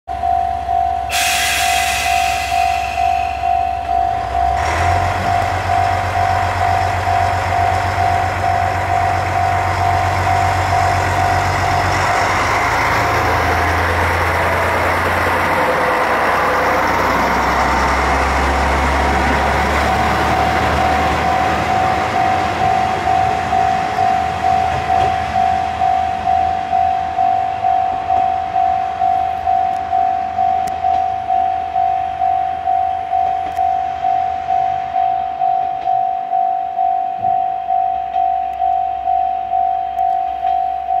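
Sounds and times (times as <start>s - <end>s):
diesel railcar engine hum: 0.1s - 41.0s
level-crossing warning bell: 0.1s - 41.0s
rail and wheel noise: 0.1s - 41.0s.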